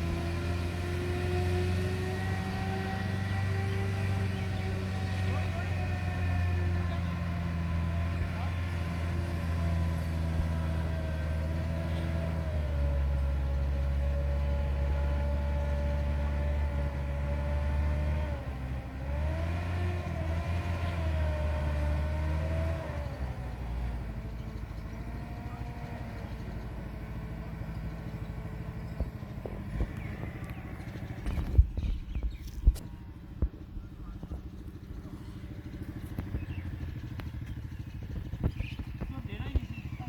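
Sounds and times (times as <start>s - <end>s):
tractor diesel engine drone: 0.0s - 40.0s.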